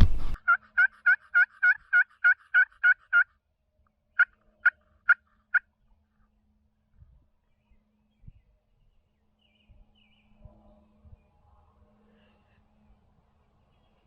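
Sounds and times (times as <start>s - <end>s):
turkey yelping: 0.4s - 3.2s.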